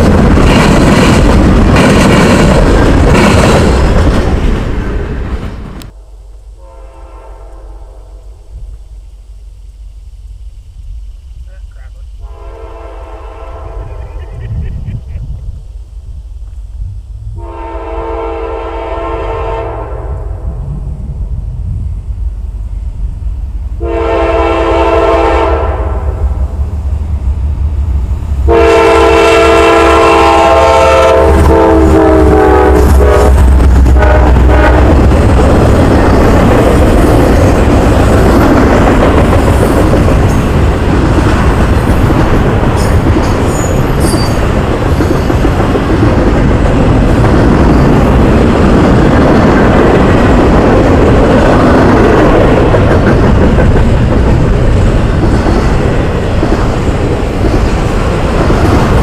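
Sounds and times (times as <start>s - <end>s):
locomotive engine rumble: 0.0s - 19.3s
train wheels rolling on rails: 0.0s - 59.0s
locomotive air horn blasts: 6.6s - 8.4s, 12.2s - 14.0s, 17.4s - 20.4s, 23.8s - 26.2s, 28.5s - 35.0s.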